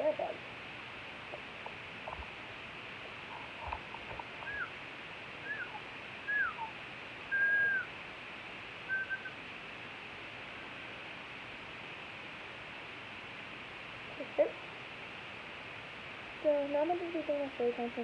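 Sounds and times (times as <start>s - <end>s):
short clear whistles: 5.5s - 6.7s, 7.3s - 7.9s, 8.9s - 9.4s.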